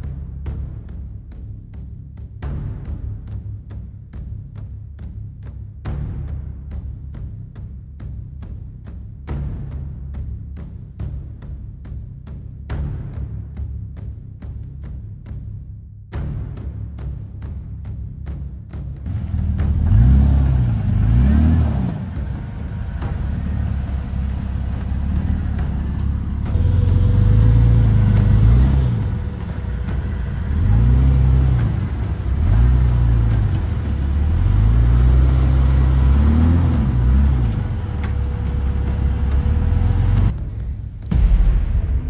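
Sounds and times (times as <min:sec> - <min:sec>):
engine revving under load: 0:19.1 - 0:40.4.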